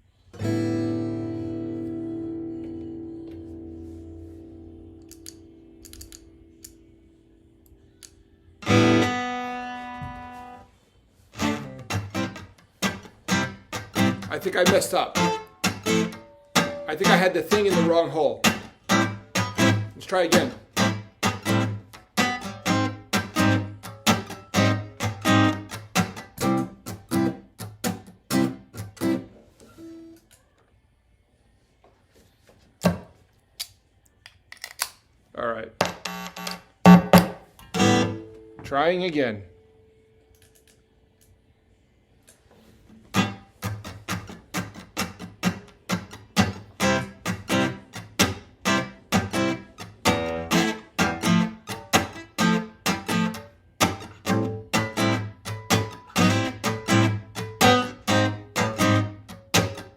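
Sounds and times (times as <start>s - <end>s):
ringing guitar note: 0.4s - 6.5s, 8.6s - 10.6s, 13.3s - 17.9s, 36.9s - 38.7s
acoustic guitar strumming: 0.4s - 7.0s, 8.6s - 10.7s, 11.3s - 30.1s, 36.8s - 38.6s, 42.9s - 59.9s.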